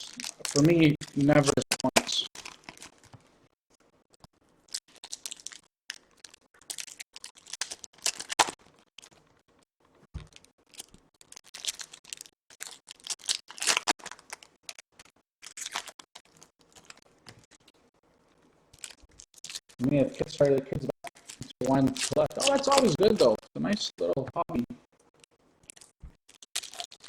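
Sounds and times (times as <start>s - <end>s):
foil wrappers crinkling and tearing: 0.0s - 3.2s, 4.6s - 9.2s, 10.2s - 17.8s, 18.7s - 20.5s, 21.1s - 23.4s, 25.6s - 27.0s
cards being handled: 20.2s - 23.4s.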